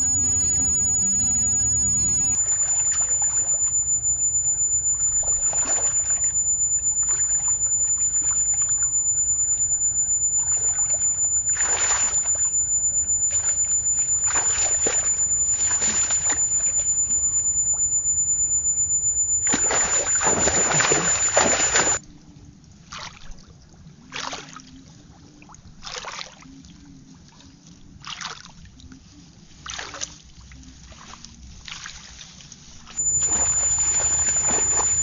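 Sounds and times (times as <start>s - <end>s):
steady low hum: 0.0s - 22.0s, 33.0s - 35.0s
water splashing and sloshing: 22.8s - 24.8s, 25.4s - 26.5s, 28.0s - 28.6s, 29.5s - 32.8s.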